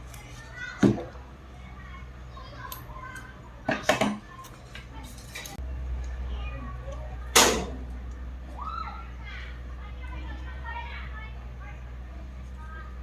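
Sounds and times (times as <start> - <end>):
hard objects knocking: 0.8 - 1.2.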